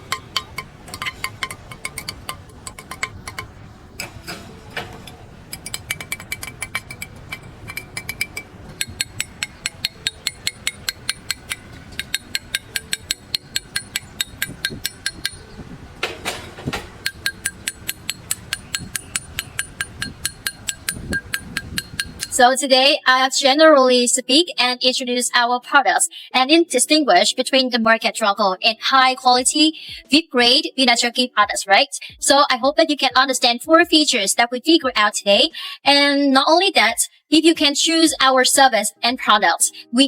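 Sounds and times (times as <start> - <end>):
charcoal briquettes clinking together: 0.0 - 22.4.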